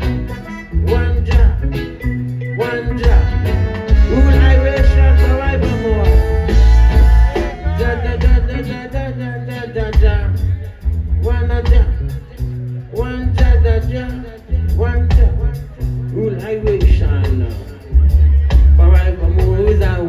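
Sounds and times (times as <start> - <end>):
sliding lead melody: 0.0 - 10.2
reggae band playing: 0.0 - 20.0.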